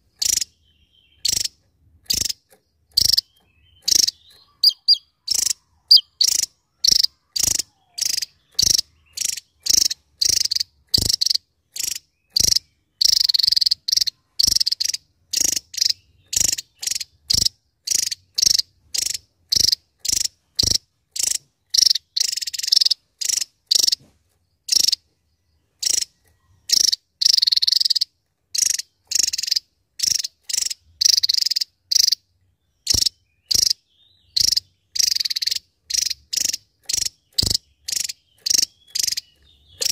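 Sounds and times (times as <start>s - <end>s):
bird calling high-pitched notes: 3.0s - 11.4s.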